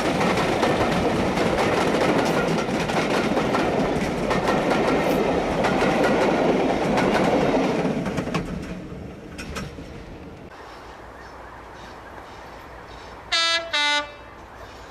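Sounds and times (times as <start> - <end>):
wheels clicking over rail joints: 0.0 - 10.9
train passing: 0.0 - 14.9.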